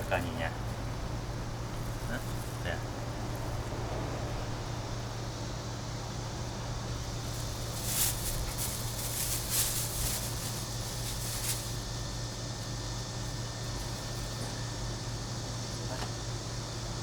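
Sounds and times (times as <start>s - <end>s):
steady low hum: 0.0s - 17.0s
brush strokes through dog fur: 7.2s - 11.9s.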